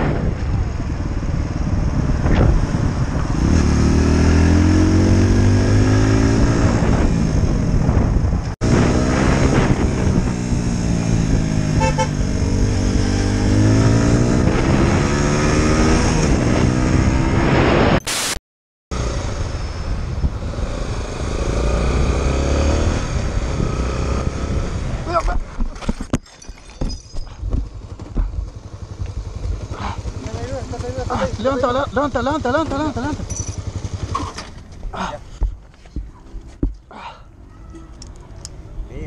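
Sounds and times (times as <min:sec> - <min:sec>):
motorcycle engine: 0:00.0 - 0:17.6, 0:18.9 - 0:26.0, 0:26.8 - 0:36.7
wind and road noise: 0:00.0 - 0:39.0
horn toot: 0:11.7 - 0:12.3.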